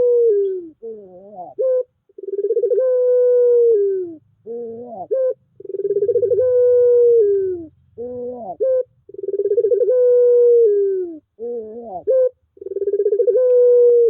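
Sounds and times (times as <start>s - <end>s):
dove cooing: 0.0s - 14.0s.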